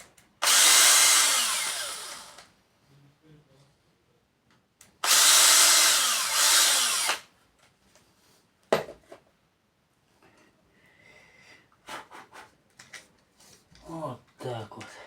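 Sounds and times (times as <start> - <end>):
power drill drilling: 0.4 - 2.5, 5.0 - 7.3.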